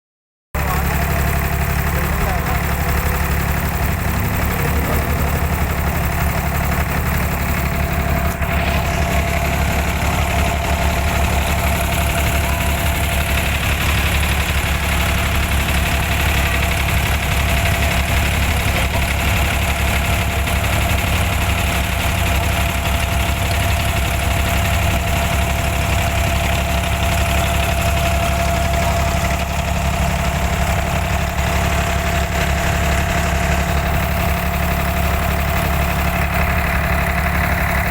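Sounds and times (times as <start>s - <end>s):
boat engine humming: 0.6s - 37.9s.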